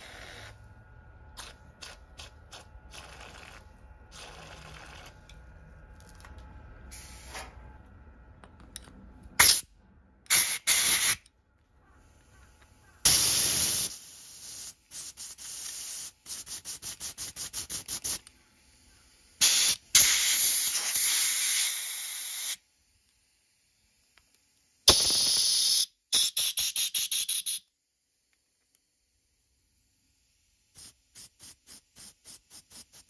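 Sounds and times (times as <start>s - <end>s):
pressurised spray hissing: 10.3s - 11.2s, 13.0s - 18.3s, 19.4s - 22.6s, 24.9s - 27.6s, 30.7s - 33.0s.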